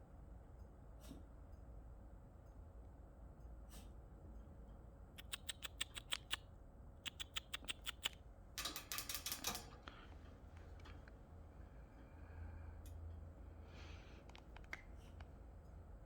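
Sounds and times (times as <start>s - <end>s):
parakeets clicking calls: 5.2s - 6.4s, 7.1s - 8.2s.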